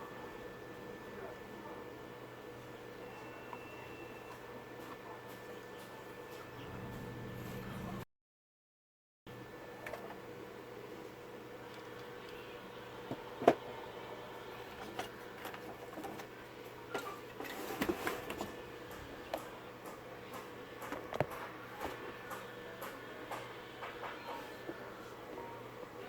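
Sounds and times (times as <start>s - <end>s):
faint hum: 0.0s - 8.0s, 9.3s - 26.0s.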